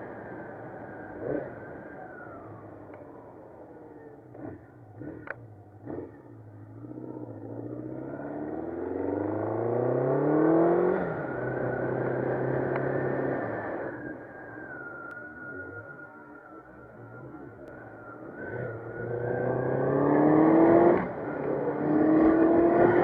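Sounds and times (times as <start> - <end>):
motorcycle engine revving: 4.0 - 14.0, 17.0 - 23.0.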